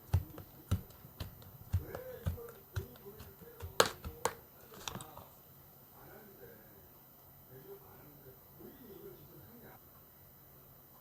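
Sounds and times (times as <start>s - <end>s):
slime squished by hand: 0.0s - 5.2s.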